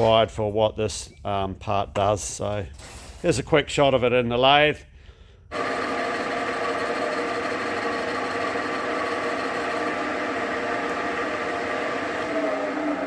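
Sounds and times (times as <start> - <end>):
metal lathe running: 5.5 - 13.0.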